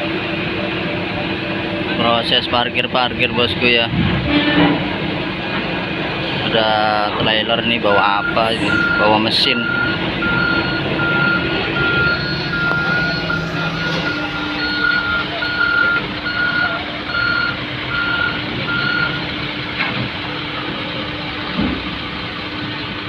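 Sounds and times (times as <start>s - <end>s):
truck engine running: 0.0s - 23.0s
truck reversing alarm beeping: 7.5s - 20.7s.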